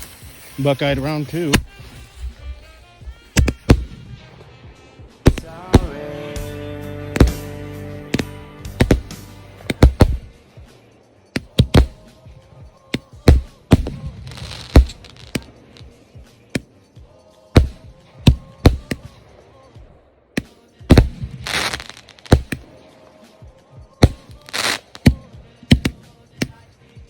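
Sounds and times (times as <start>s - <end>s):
firework hissing bursts: 0.0s - 2.6s, 13.6s - 15.9s, 20.9s - 22.7s, 24.1s - 25.2s
firework reports: 0.0s - 8.2s, 8.8s - 12.4s, 13.3s - 16.5s, 20.9s - 23.4s, 24.0s - 26.1s
background music: 0.0s - 27.0s.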